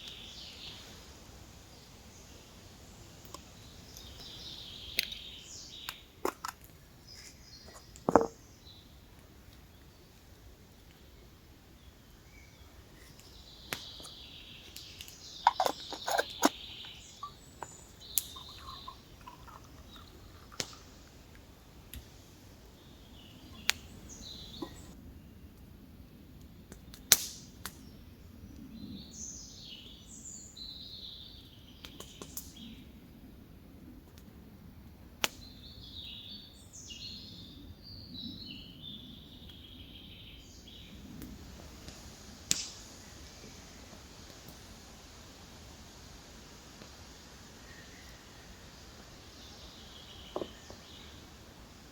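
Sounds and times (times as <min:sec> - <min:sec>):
birds singing: 0:00.0 - 0:01.0, 0:01.7 - 0:09.0, 0:10.8 - 0:21.1, 0:22.6 - 0:25.4, 0:35.4 - 0:41.2, 0:47.6 - 0:51.9.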